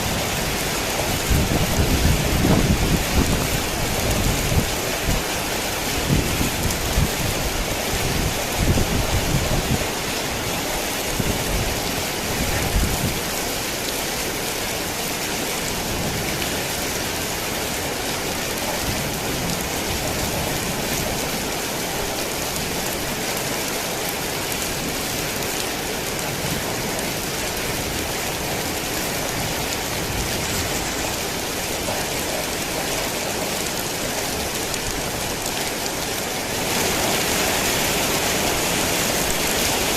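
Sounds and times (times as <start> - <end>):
thunder rumbles: 0.0 - 9.9
heavy rain: 0.0 - 39.9.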